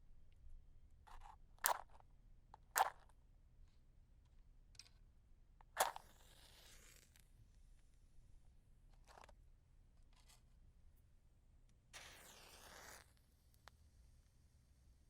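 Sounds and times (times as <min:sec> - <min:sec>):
match scraped against striker: 0:05.8 - 0:07.2, 0:12.0 - 0:13.2
match head flaring hiss: 0:12.0 - 0:13.7.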